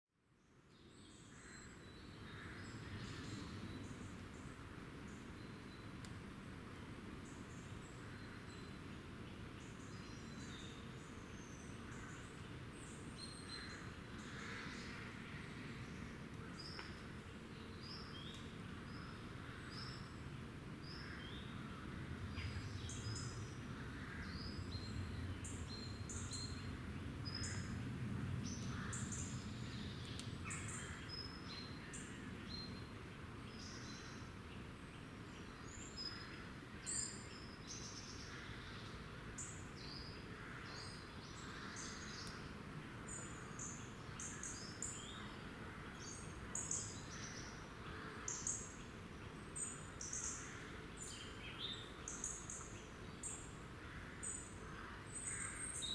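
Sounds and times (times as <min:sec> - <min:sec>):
faint low rumble: 0:20.8 - 0:31.6.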